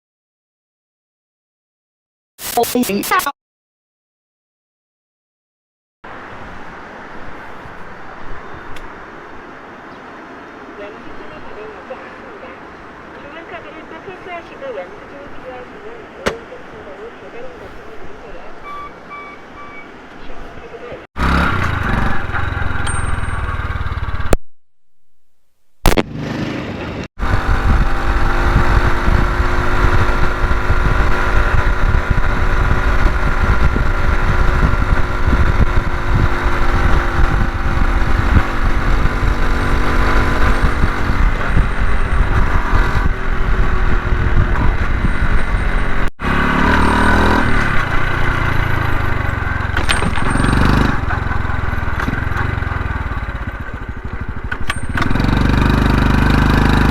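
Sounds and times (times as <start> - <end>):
motorcycle engine running: 21.2 - 24.4, 26.0 - 56.9
wind rumble on microphone: 27.2 - 46.1.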